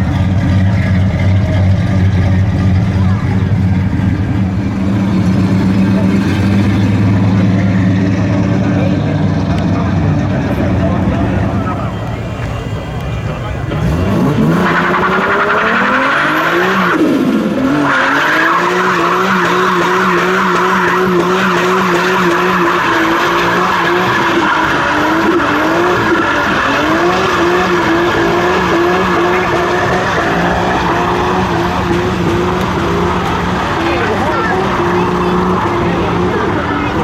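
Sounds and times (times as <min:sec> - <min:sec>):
car engine at high revs: 0:00.0 - 0:37.0.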